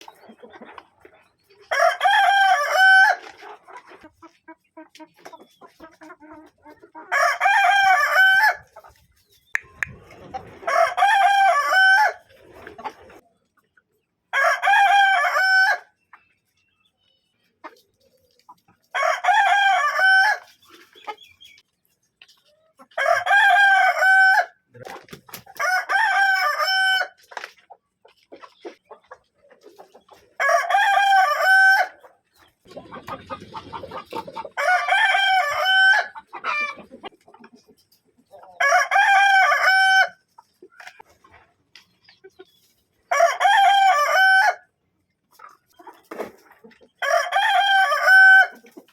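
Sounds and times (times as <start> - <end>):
roosters crowing: 1.7 - 3.4, 7.1 - 8.7, 10.5 - 12.3, 14.3 - 15.9, 18.9 - 20.5, 23.0 - 24.6, 25.5 - 27.2, 30.4 - 32.0, 34.4 - 36.8, 38.6 - 40.2, 43.1 - 44.7, 47.0 - 48.6.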